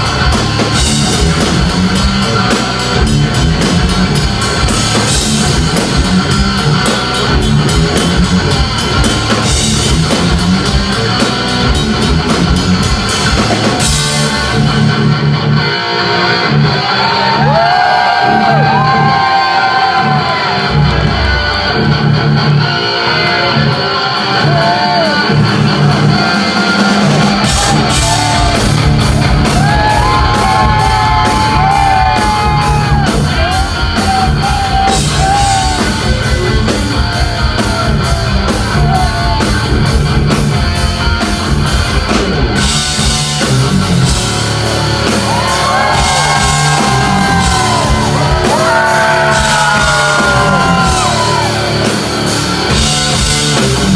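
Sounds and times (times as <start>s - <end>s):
drums and cymbals: 0.0s - 15.4s, 24.1s - 53.9s
bass: 0.0s - 53.9s
electric guitar lead lines: 18.2s - 53.9s.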